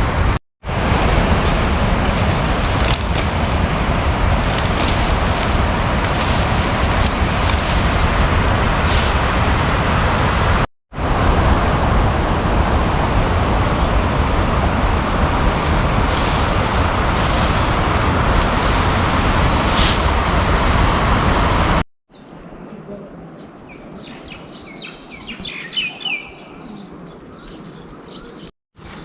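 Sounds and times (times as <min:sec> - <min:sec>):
water rushing: 0:00.0 - 0:21.8.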